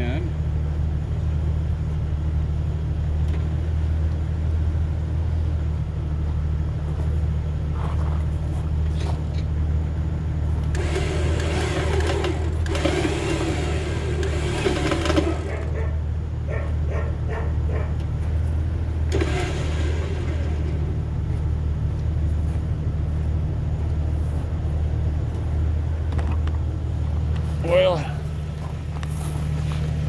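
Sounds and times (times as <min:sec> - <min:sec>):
car engine idling: 0:00.0 - 0:30.0
electric winch whirring: 0:10.5 - 0:16.0, 0:18.0 - 0:21.7.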